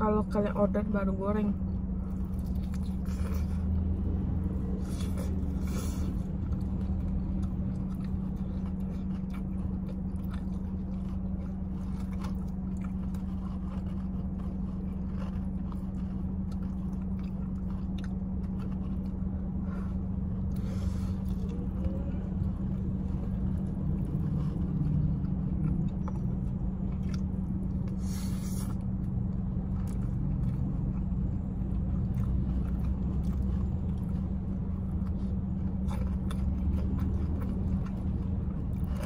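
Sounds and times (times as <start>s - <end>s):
car engine low hum: 0.0s - 39.0s
crunching and chewing fried chicken: 0.0s - 39.0s.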